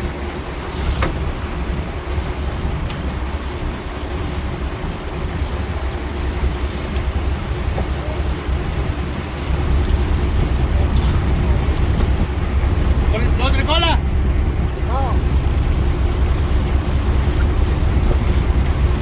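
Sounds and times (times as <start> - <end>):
boat engine rumbling: 0.0 - 19.0
water noise: 0.0 - 19.0
wind: 0.0 - 19.0.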